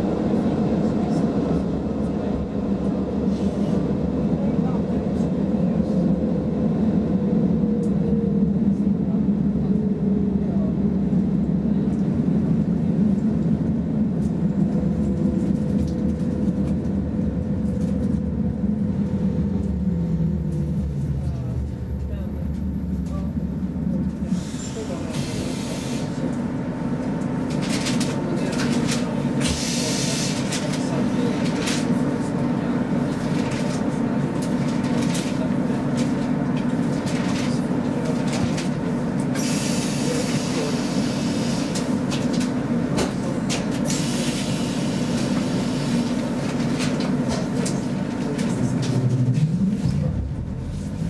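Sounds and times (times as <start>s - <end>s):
train cabin hum: 0.0s - 51.0s.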